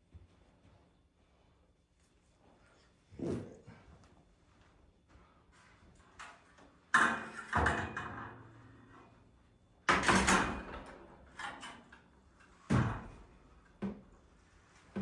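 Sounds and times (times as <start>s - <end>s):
ladder clanking and banging: 6.9s - 8.8s, 9.9s - 11.9s.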